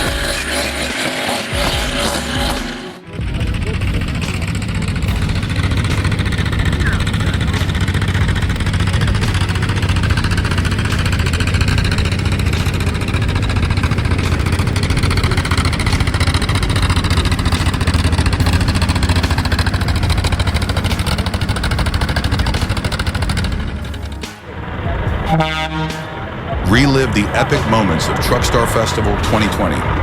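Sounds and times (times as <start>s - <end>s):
heavy truck engine running: 0.0s - 30.0s.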